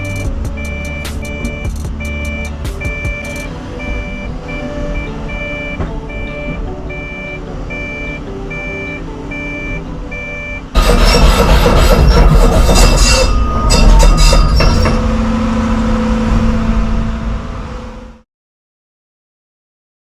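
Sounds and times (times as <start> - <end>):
excavator warning beeper: 0.0 - 15.0
engine running: 0.0 - 18.2
harsh mechanical rattling: 10.8 - 15.4.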